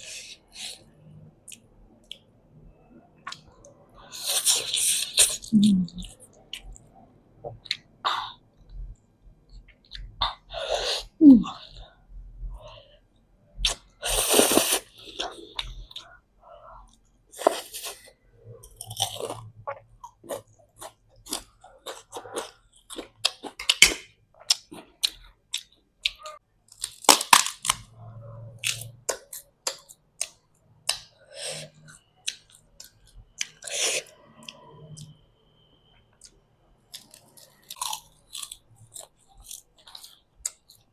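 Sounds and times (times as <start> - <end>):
person chewing and crunching food: 13.6 - 35.2, 36.2 - 40.9.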